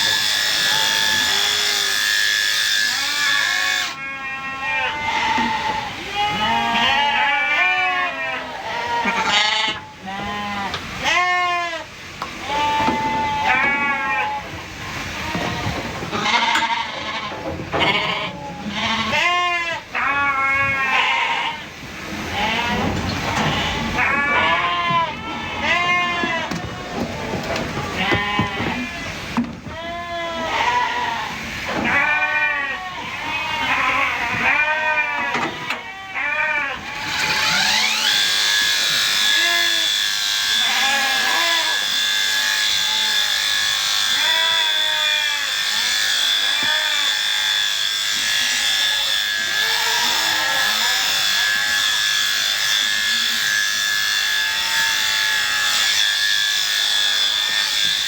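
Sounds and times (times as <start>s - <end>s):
sheep bleating: 2.8s - 14.5s, 15.1s - 37.8s, 38.6s - 57.8s.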